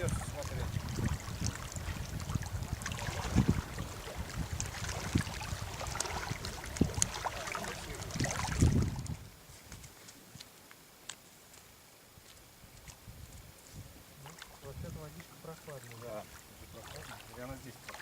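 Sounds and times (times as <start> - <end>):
wind rumbling on microphone: 0.0 - 9.9, 12.6 - 15.3
moving water: 0.0 - 10.2, 12.7 - 18.0.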